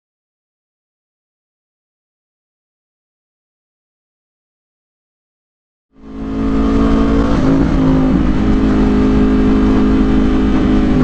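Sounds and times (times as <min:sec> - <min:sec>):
low road rumble: 0:05.9 - 0:11.0
vehicle engine running: 0:06.0 - 0:11.0.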